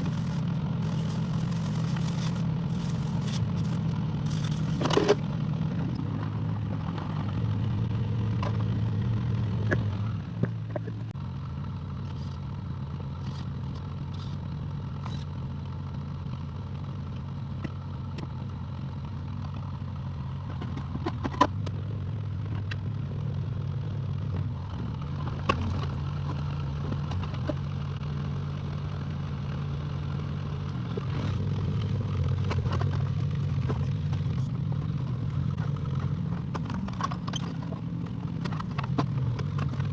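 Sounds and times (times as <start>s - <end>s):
excavator engine running: 0.0s - 16.1s.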